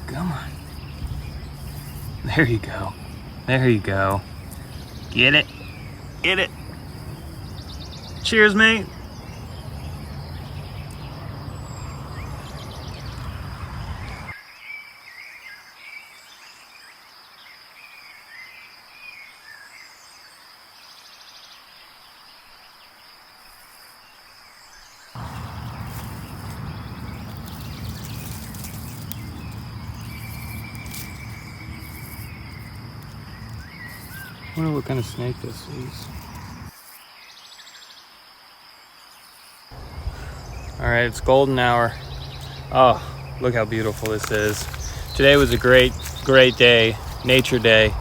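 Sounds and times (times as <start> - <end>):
bird trill: 0.0 - 14.9, 25.2 - 36.7, 39.8 - 48.0
bird chirps: 0.0 - 16.3, 24.6 - 38.0, 39.7 - 48.0
low rumble: 25.2 - 34.6, 39.8 - 48.0
high-pitched insect drone: 25.2 - 37.0.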